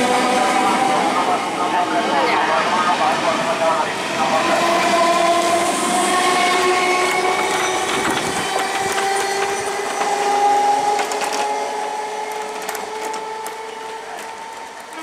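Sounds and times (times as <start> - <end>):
rattling clicks of running gear: 10.9 - 11.6, 12.3 - 13.6.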